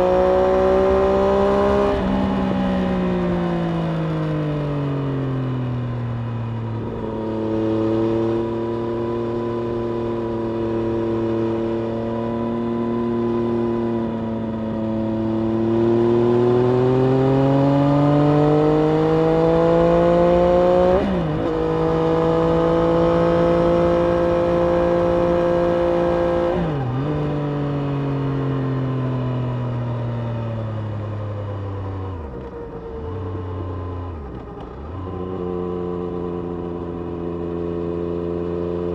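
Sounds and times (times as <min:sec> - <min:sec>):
motorcycle engine revving: 0:00.0 - 0:04.8, 0:05.9 - 0:28.6.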